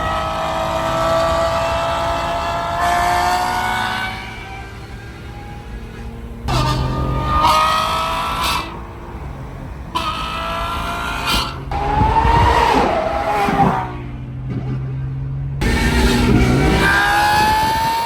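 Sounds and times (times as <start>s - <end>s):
sports car engine revving: 0.0s - 18.0s.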